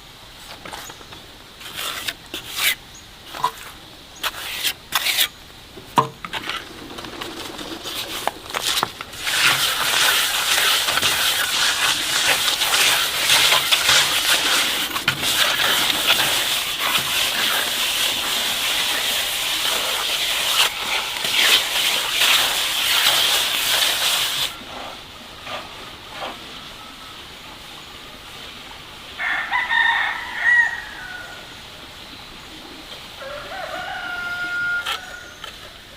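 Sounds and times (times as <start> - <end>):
rooster crowing: 29.2 - 31.5, 33.2 - 35.4.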